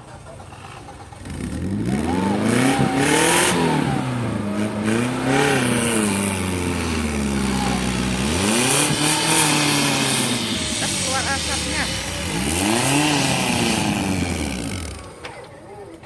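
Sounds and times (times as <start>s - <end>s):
off-road vehicle engine revving: 0.0s - 15.5s.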